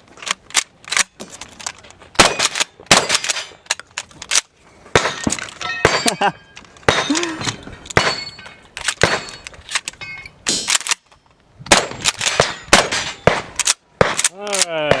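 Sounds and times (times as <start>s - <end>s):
shotgun firing: 2.2s - 3.4s, 4.9s - 6.1s, 9.0s - 9.4s, 11.7s - 15.0s
steel plates clanging: 5.0s - 10.7s.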